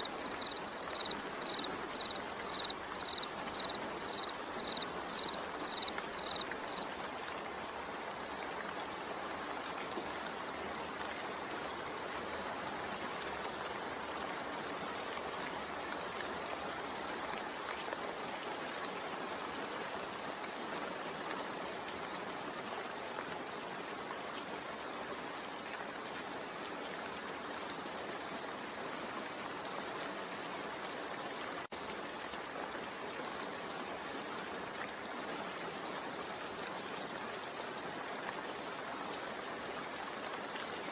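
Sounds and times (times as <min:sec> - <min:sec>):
cricket-like chirps: 0:00.0 - 0:06.9
steady rain: 0:00.0 - 0:40.9.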